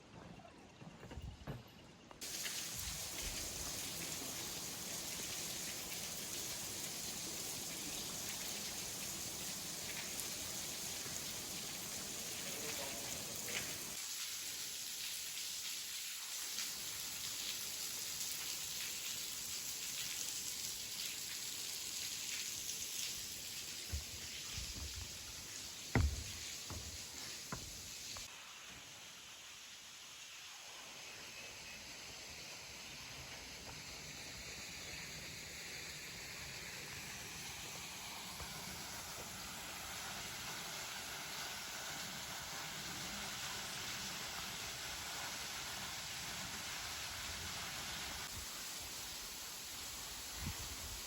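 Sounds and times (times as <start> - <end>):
water hissing: 2.2 - 51.0
loud knock: 25.9 - 27.0.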